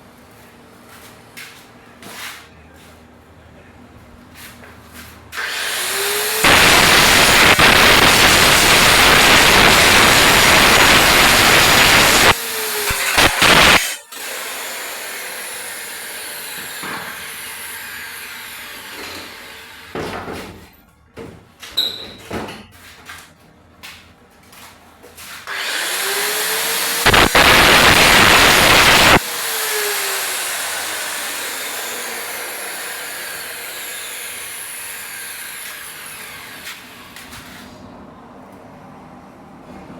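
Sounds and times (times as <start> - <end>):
angle grinder running: 5.4 - 20.0, 25.5 - 37.3.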